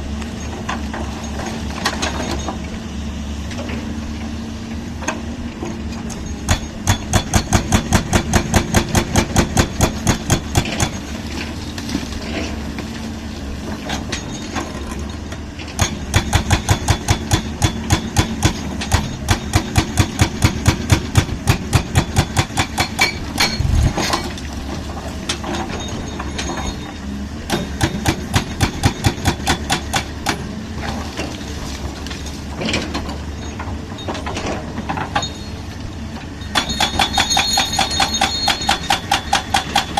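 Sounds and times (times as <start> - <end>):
engine running: 0.0 - 39.9
concrete breaker hammering: 6.5 - 11.1, 15.8 - 24.2, 27.5 - 30.5, 36.5 - 39.9.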